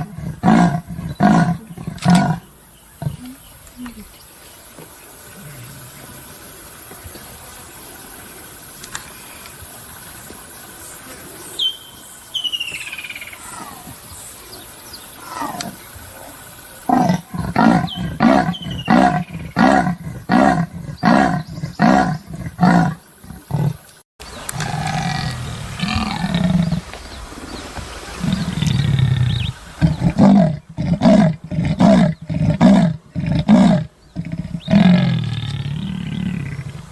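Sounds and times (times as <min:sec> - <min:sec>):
faint bird chirps: 0:10.9 - 0:16.3
leopard deep rasping grunts: 0:16.9 - 0:23.8, 0:28.3 - 0:36.9.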